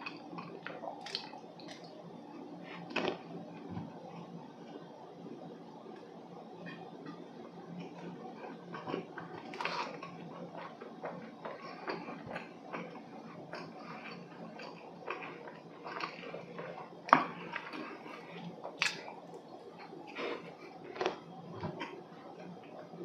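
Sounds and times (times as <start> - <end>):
man chewing: 6.6 - 22.9.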